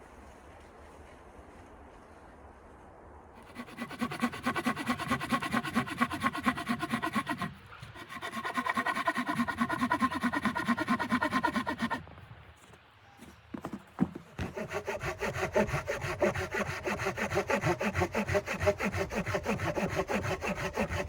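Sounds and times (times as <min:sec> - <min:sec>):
hand saw cutting wood: 0:03.4 - 0:12.0, 0:13.6 - 0:21.0.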